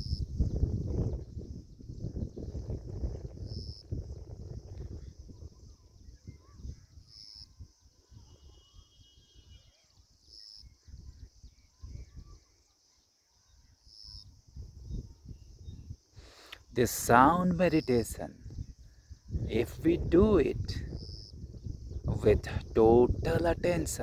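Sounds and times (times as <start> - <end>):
wind buffeting microphone: 0.0 - 8.4, 14.3 - 16.1, 16.7 - 24.0
faint bird chirps: 4.9 - 19.4.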